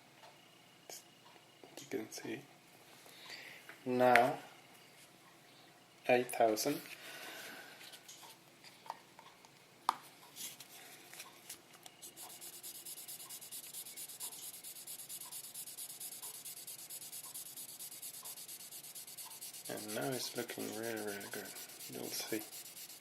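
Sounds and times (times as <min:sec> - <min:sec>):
sandpaper rubbing on paint: 0:12.1 - 0:23.0.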